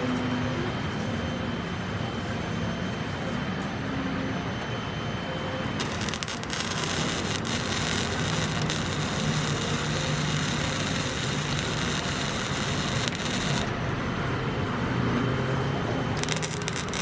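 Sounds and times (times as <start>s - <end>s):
welder arc crackling: 5.8s - 14.1s, 16.2s - 17.0s.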